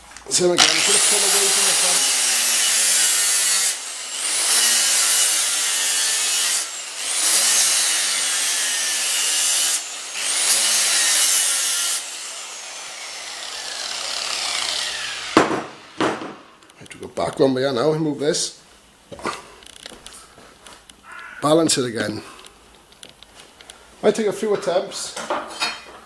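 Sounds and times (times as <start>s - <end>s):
grinder grinding metal blade: 0.4s - 16.0s
grinder winding down: 0.5s - 16.0s
sharp knock: 15.4s - 16.5s.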